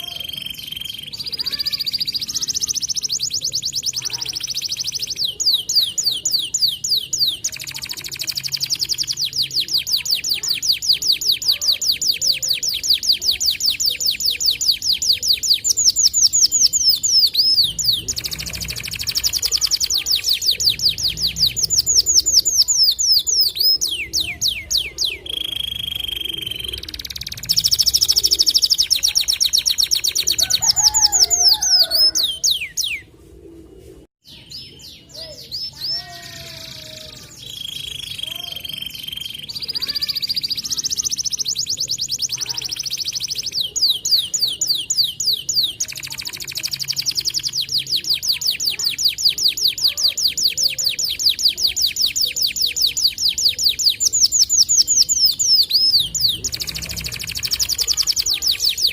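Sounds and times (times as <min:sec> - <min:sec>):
canary singing rapid trills: 0:00.0 - 0:33.0, 0:34.3 - 0:58.9.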